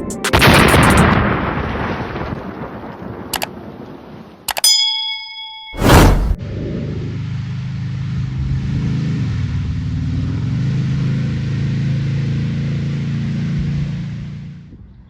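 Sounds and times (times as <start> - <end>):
loud hit: 5.8 - 6.4
car engine exhaust drone: 6.4 - 15.0.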